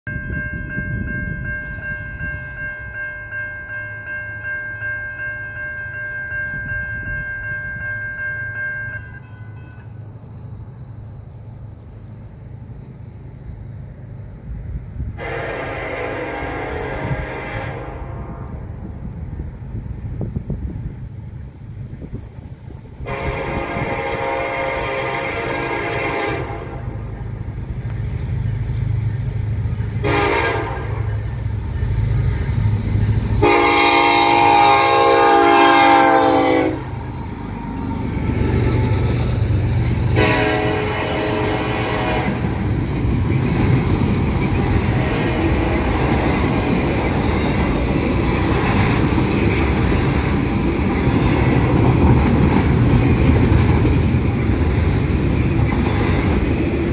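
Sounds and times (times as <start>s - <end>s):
diesel locomotives rumbling: 0.0s - 56.9s
locomotive air horn blasts: 15.2s - 18.4s, 23.0s - 27.0s, 30.0s - 31.3s, 33.4s - 37.0s, 40.1s - 42.6s
freight cars rolling: 26.3s - 56.9s.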